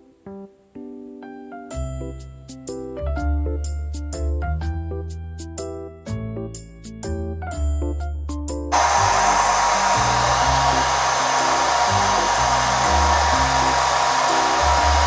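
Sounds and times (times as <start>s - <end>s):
hair dryer running: 8.8s - 15.0s.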